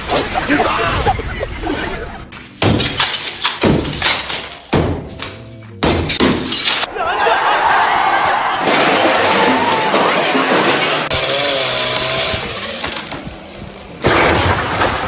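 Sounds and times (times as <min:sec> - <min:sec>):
loud machine grinding: 0:10.1 - 0:15.0.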